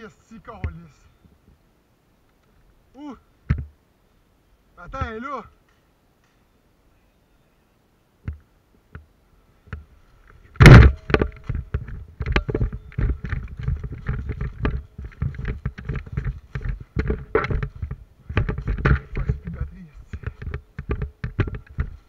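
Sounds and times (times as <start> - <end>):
microphone handling knocks and clicks: 3.4 - 3.8, 4.8 - 5.8, 8.2 - 9.1, 9.7 - 22.0.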